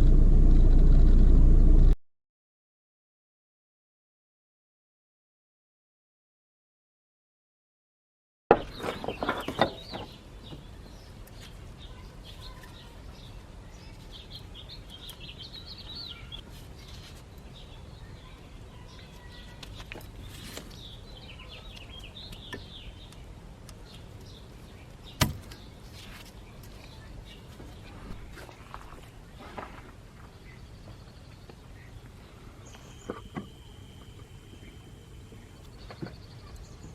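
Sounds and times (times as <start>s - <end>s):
steady low hum: 0.0s - 2.0s, 27.8s - 36.9s
small birds chirping: 8.6s - 36.9s.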